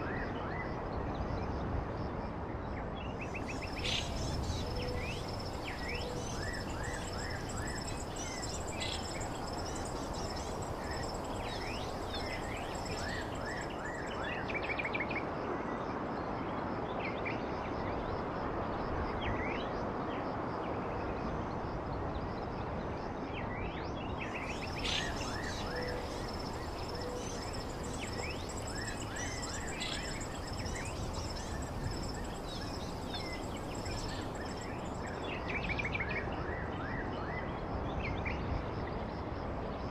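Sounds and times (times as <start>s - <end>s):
steady background hiss: 3.2s - 14.9s, 24.2s - 36.0s
birds chirping: 3.4s - 14.2s, 24.4s - 35.2s
high insect-like buzz: 24.5s - 35.1s.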